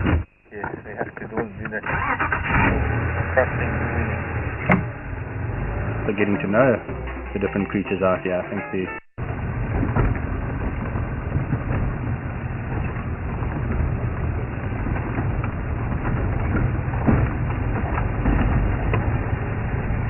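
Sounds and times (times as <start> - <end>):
vehicle engine and road rumble: 0.0 - 20.0
vehicle knocks and rattles: 9.2 - 20.0.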